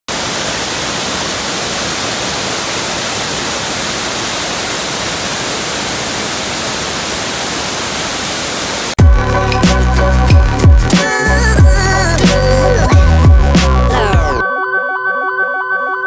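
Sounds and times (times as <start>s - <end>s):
steady broadband hiss: 0.1s - 9.0s.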